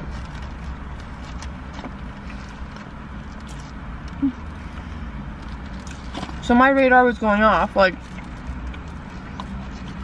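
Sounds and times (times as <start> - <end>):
low rumble inside a car: 0.0 - 10.0.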